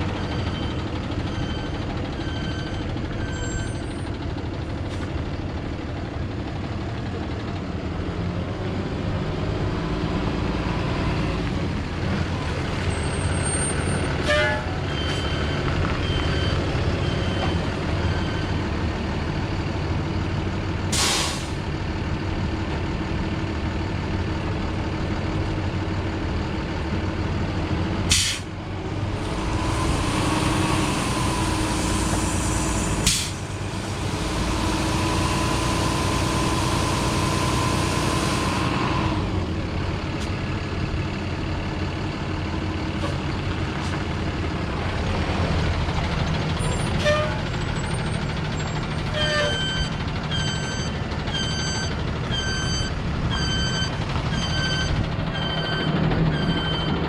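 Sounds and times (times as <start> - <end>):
truck engine running: 0.0 - 57.0
air brake hisses: 20.9 - 21.6, 28.1 - 28.5, 31.7 - 33.4.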